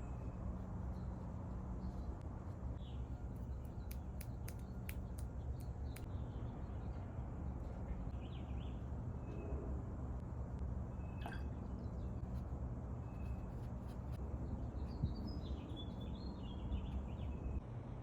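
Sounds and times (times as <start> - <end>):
faint birdsong chirps: 0.0 - 9.7, 10.8 - 17.6
low background hum: 0.0 - 18.0.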